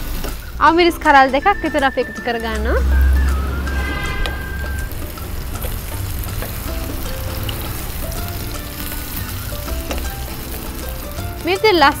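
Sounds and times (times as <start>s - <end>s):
faint background music: 0.0s - 12.0s
vegetables sizzling in hot oil: 0.0s - 12.0s
spatula stirring in a pan: 3.8s - 11.8s.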